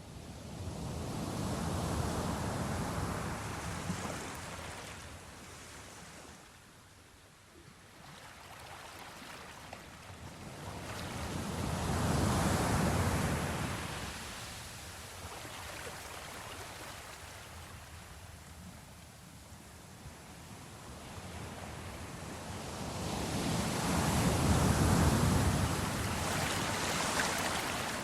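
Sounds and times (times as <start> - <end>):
sea waves washing: 23.6 - 28.0.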